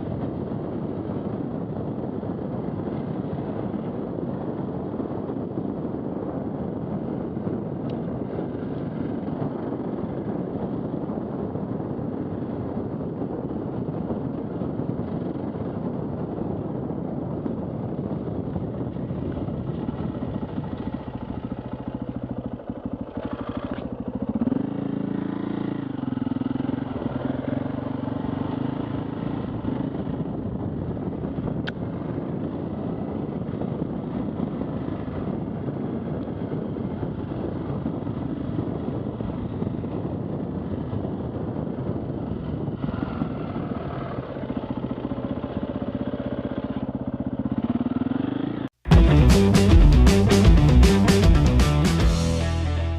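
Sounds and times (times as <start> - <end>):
motorbike engine revving: 19.3 - 30.2, 42.2 - 52.9.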